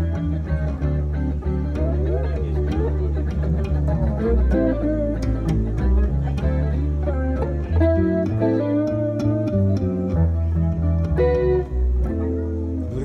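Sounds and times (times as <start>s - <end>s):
bass line: 0.0s - 13.0s
plucked guitar notes: 0.0s - 13.0s.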